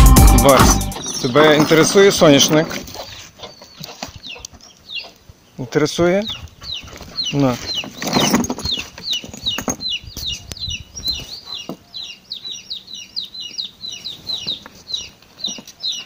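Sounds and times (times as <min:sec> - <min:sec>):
small birds chirping: 0:00.9 - 0:16.0
rustling: 0:06.6 - 0:09.8.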